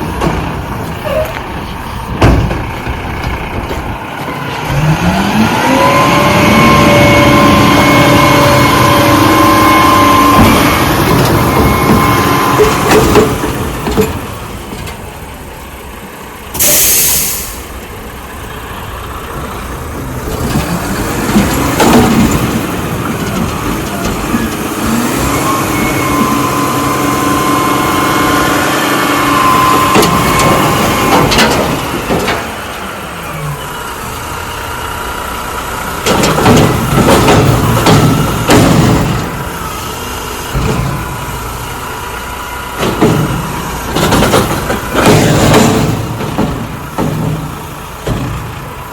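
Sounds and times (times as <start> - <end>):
garbage truck engine running: 0.0 - 48.9
sharp metal knocks and clanks: 2.1 - 4.9, 7.8 - 15.1, 20.4 - 25.0, 29.6 - 32.8, 36.0 - 39.6, 42.8 - 48.7
air hiss burst: 16.6 - 17.7.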